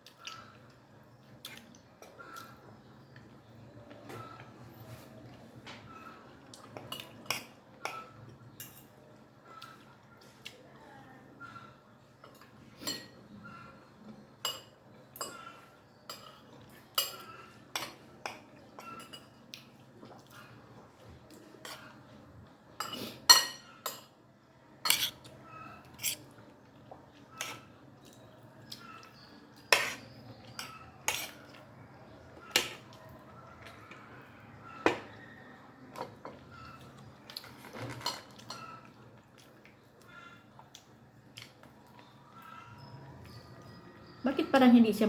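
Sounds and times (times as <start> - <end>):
cutlery clinking on a plate: 12.2 - 13.2, 14.4 - 19.4, 22.8 - 24.2, 24.8 - 25.3, 29.6 - 31.6, 35.9 - 39.0.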